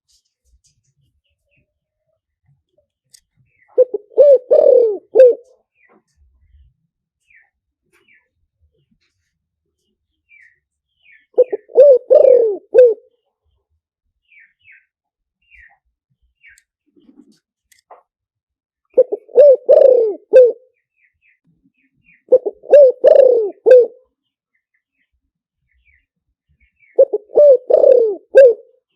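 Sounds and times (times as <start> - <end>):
small birds chirping: 0.1 - 18.1, 18.9 - 28.9
dove cooing: 3.8 - 5.5, 11.4 - 13.1, 19.0 - 20.6, 22.2 - 24.0, 27.0 - 28.7.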